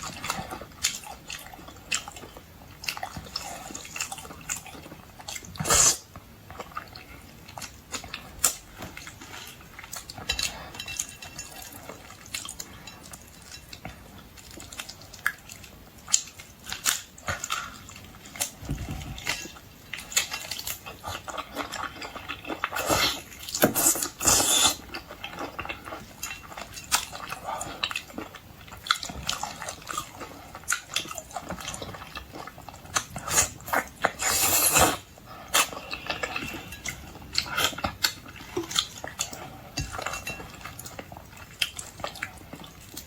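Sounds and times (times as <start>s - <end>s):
wet chewing and lip smacking: 19.2s - 43.0s.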